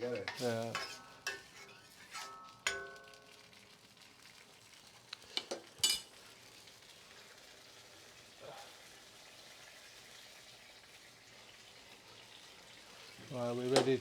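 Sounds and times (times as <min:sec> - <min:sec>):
sauce sizzling in a pan: 0:00.0 - 0:14.0
metal utensil knocking a pan: 0:02.7 - 0:03.2.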